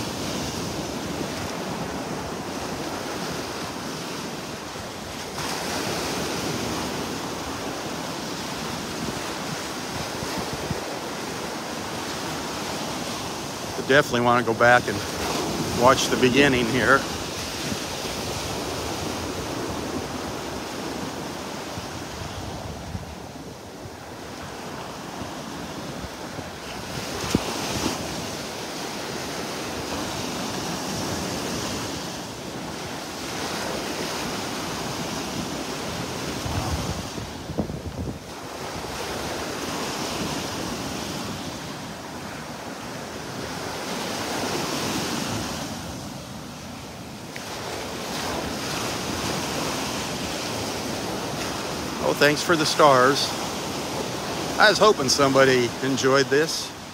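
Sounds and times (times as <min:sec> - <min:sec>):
surf washing in and out: 0:00.0 - 0:56.9
wind buffeting microphone: 0:09.0 - 0:11.1, 0:25.6 - 0:28.4, 0:34.8 - 0:39.2.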